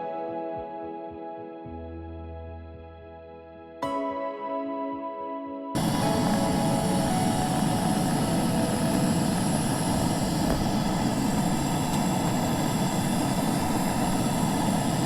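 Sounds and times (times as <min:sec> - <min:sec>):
outboard motor droning: 0:05.8 - 0:15.0.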